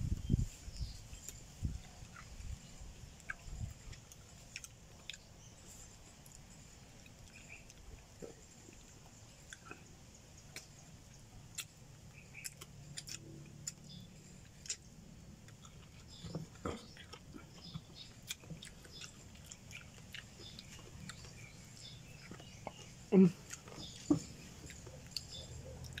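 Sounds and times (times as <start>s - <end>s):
faint low hum: 0.0s - 26.0s
chewing and biting: 0.8s - 26.0s.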